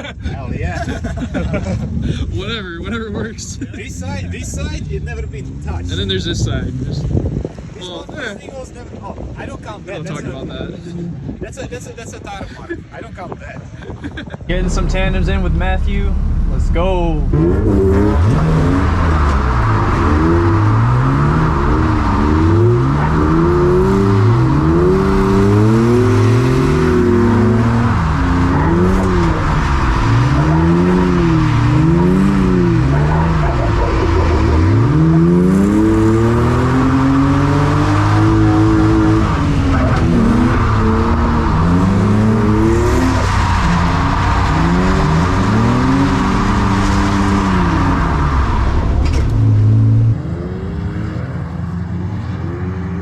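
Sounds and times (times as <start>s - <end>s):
car engine revving: 3.8s - 7.6s, 14.4s - 53.0s
tires skidding: 14.4s - 52.8s.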